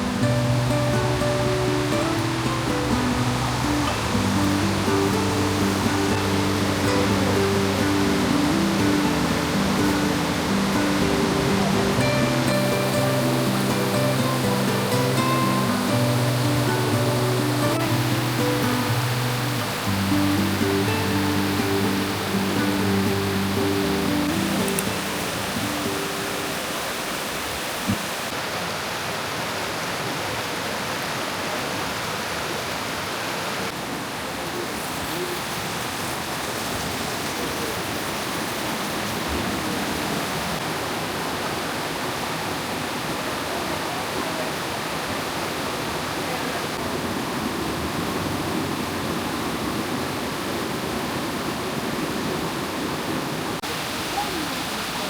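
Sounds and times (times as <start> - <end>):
rush of flowing water: 0.0 - 55.0.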